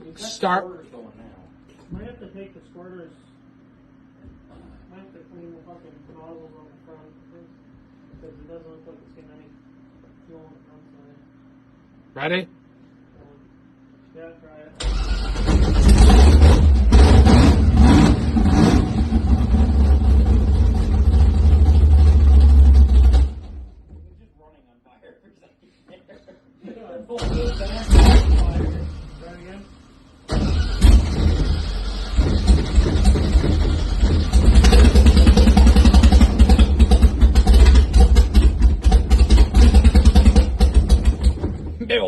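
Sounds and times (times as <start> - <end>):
engine revving and running: 14.8 - 23.8, 27.2 - 29.4, 30.3 - 41.7
engine idling with choppy beat: 31.0 - 41.7.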